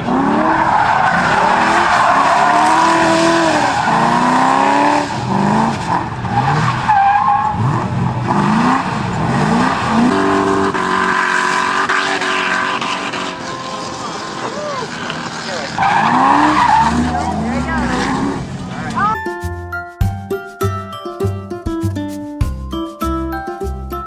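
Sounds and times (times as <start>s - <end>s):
car engine revving hard: 0.0s - 19.0s
tyres squealing: 11.0s - 19.2s.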